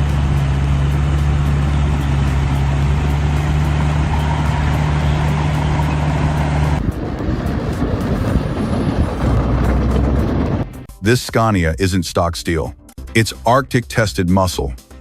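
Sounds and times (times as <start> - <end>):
rough engine sound: 0.0 - 10.9
snow blower engine droning: 0.0 - 10.9.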